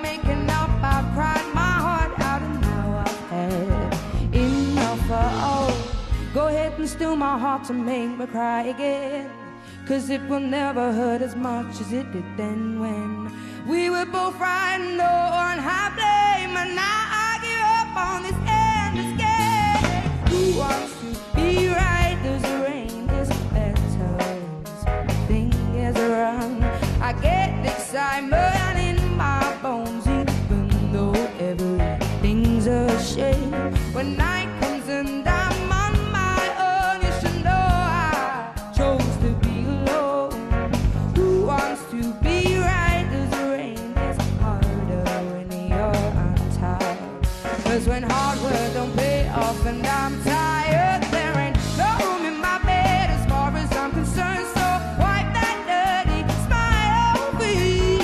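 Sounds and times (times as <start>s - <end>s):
live band playing soul-pop: 0.0s - 58.0s
person singing: 0.0s - 58.0s
steady drum beat: 0.1s - 6.5s, 19.0s - 24.3s, 45.8s - 58.0s.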